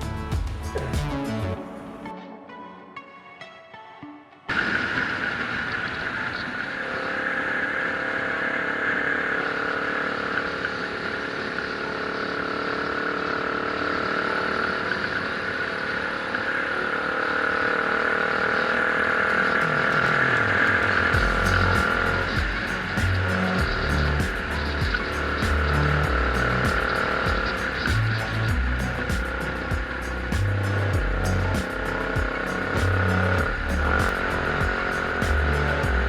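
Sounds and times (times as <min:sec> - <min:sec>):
road noise: 0:04.5 - 0:36.0
motorcycle engine running: 0:08.9 - 0:36.0.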